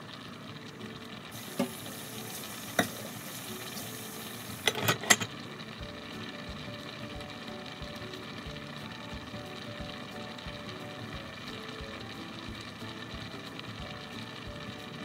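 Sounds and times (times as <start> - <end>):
rice boiling and bubbling: 0.0 - 15.0
metal cookware clinks: 4.6 - 5.3.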